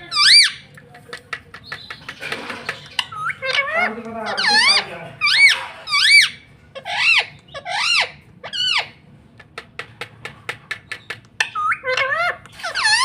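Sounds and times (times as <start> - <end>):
parakeet screeching: 0.0 - 0.7, 2.4 - 9.0, 11.4 - 13.0
parakeet warbling chatter: 0.0 - 9.0, 10.9 - 13.0.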